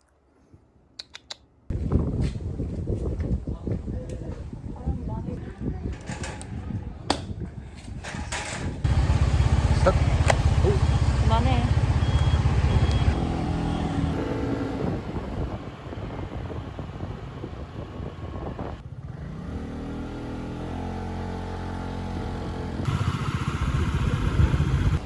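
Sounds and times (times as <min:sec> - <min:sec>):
vehicle engine running: 0:08.8 - 0:19.1, 0:20.7 - 0:25.0.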